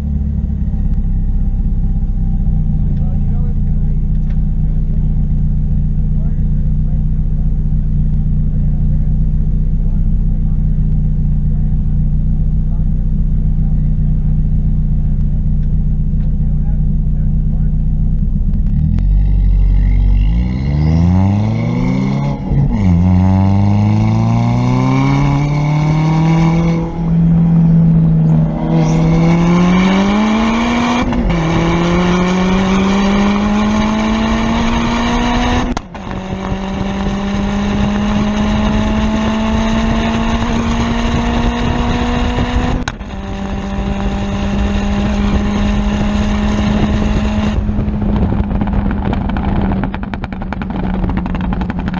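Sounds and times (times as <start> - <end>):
exhaust crack on upshift: 0.0 - 20.4, 21.3 - 51.9
car accelerating through gears: 18.6 - 51.9.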